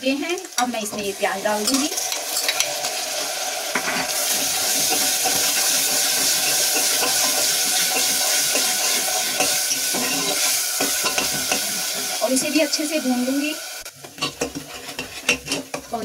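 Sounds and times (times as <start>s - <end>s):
paste sizzling in hot oil: 0.0s - 16.0s.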